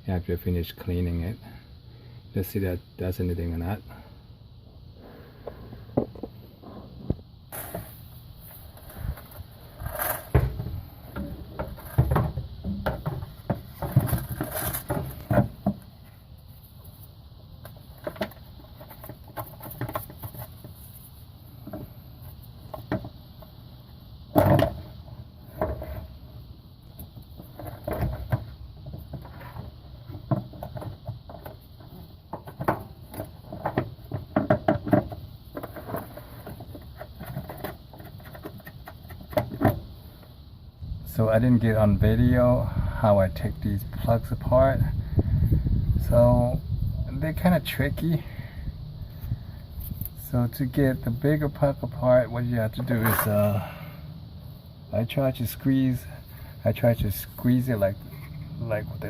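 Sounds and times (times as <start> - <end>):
plastic canister clunks and rattles: 9.2 - 15.9, 17.7 - 20.7, 22.7 - 23.2, 24.3 - 26.1, 27.4 - 39.9.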